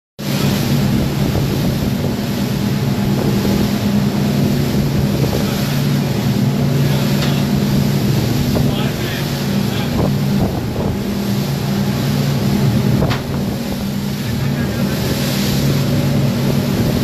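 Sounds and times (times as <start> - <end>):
engine humming: 0.3 - 17.0
wind noise on microphone: 0.7 - 6.0, 9.7 - 11.3, 12.4 - 13.8.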